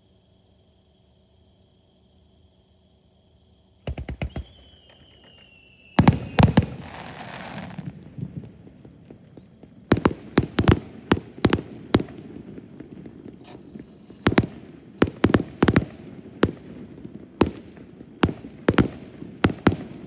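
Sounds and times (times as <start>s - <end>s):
fireworks bangs: 3.9s - 20.0s
fireworks crackling hiss: 3.9s - 20.0s.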